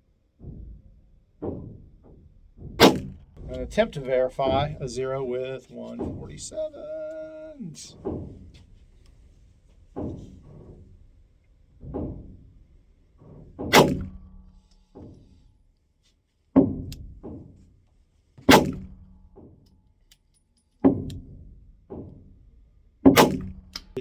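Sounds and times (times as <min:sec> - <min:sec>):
faint knocks: 0:00.4 - 0:13.7
pistol shots: 0:02.8 - 0:03.2, 0:13.7 - 0:14.1, 0:18.5 - 0:18.9, 0:23.2 - 0:23.9.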